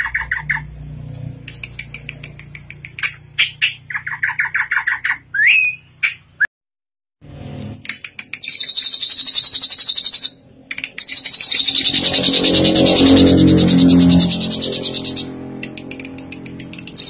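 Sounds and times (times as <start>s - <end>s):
bird clicks and chattering: 1.2s - 4.5s, 7.8s - 17.0s
bird rising whistle: 5.4s - 5.8s
bird buzzing trill: 11.2s - 15.4s.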